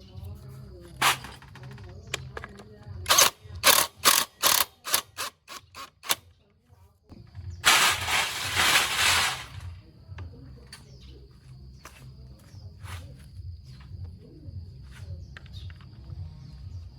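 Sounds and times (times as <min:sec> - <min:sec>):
sharp mechanical clicks: 0:03.1 - 0:06.2
hiss: 0:07.7 - 0:09.7.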